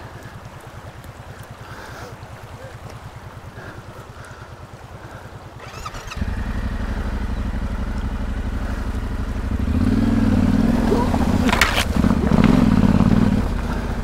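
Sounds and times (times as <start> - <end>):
motorcycle engine revving: 5.6 - 14.0.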